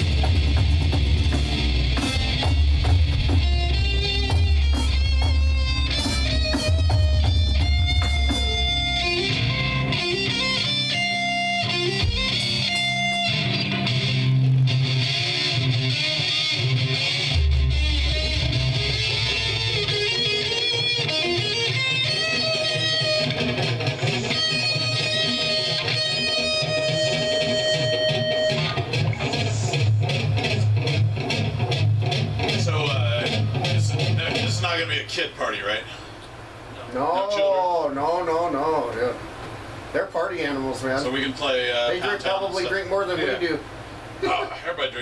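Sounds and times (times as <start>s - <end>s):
heavy low bass notes: 0.0s - 10.4s
electric guitar playing: 0.0s - 34.9s.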